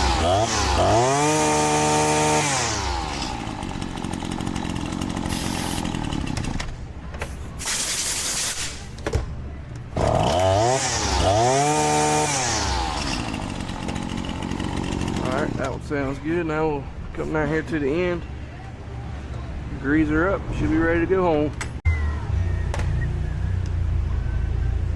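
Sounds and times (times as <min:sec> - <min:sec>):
string trimmer engine revving and idling: 0:00.0 - 0:06.6, 0:10.0 - 0:15.8.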